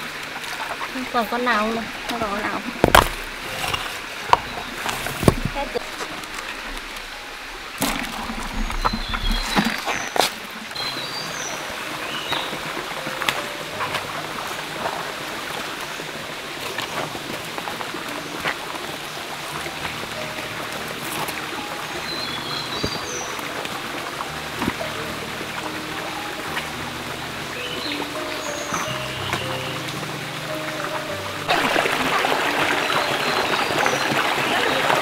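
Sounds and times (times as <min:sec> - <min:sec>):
stream water running over rocks: 0:00.0 - 0:35.0
small clicks and splashes: 0:12.3 - 0:35.0.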